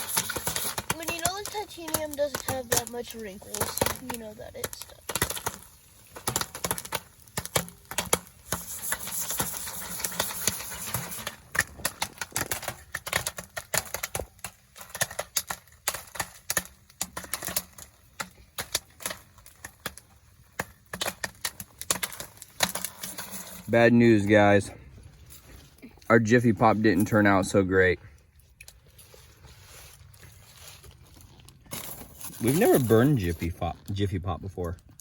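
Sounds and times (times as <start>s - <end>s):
popcorn popping in foil pan: 0.0s - 24.4s, 31.7s - 35.0s.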